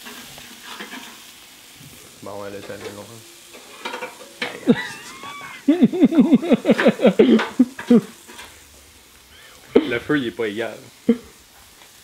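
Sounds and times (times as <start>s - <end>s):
man laughing hard: 4.6s - 8.2s, 9.7s - 10.2s, 11.0s - 11.3s
man vocal exclamation: 9.4s - 11.3s.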